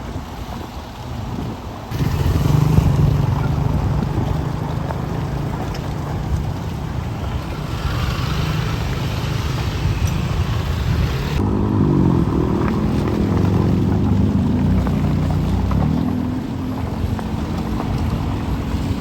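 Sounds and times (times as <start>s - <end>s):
vehicle engines passing: 0.2s - 19.0s
loud engine rising in pitch: 11.2s - 16.4s.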